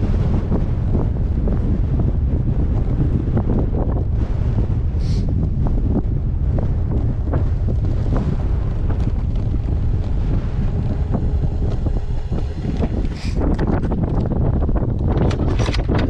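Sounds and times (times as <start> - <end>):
wind buffeting microphone: 0.0 - 16.0
bike clicks and rattles: 7.7 - 16.0.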